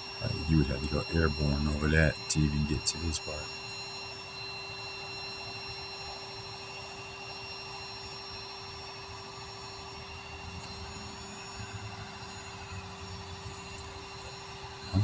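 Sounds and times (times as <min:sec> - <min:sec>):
steady hum: 0:00.0 - 0:04.2, 0:13.2 - 0:15.0.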